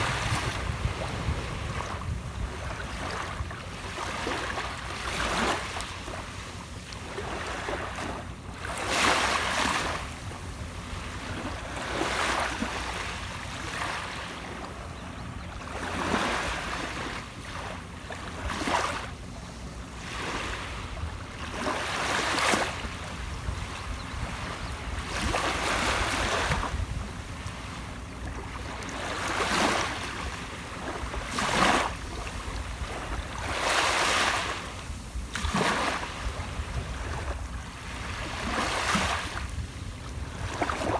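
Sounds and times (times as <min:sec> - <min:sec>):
steady low rumble: 0:00.0 - 0:03.6
ocean waves breaking: 0:00.0 - 0:14.7, 0:19.8 - 0:40.9.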